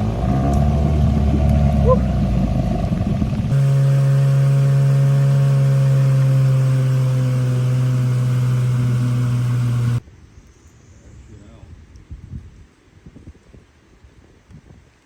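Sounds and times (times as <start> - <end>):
outboard motor droning: 0.0 - 10.0.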